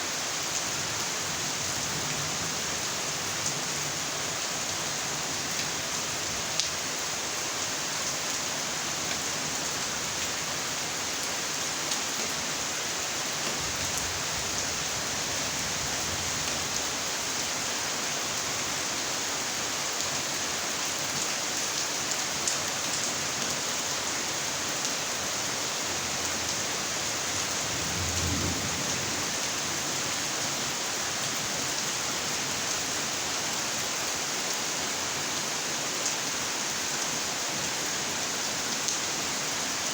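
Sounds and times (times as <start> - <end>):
heavy rain pattering: 25.9 - 32.8.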